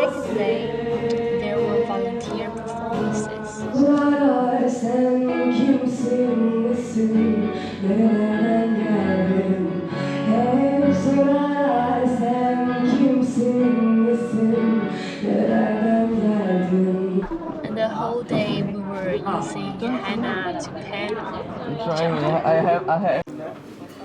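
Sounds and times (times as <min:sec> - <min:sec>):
musical accompaniment: 0:00.0 - 0:15.5
woman singing: 0:00.0 - 0:20.3.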